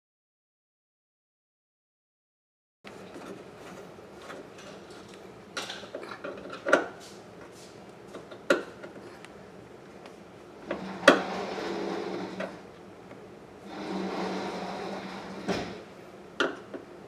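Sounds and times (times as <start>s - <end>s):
faint steady hum: 2.9s - 17.0s.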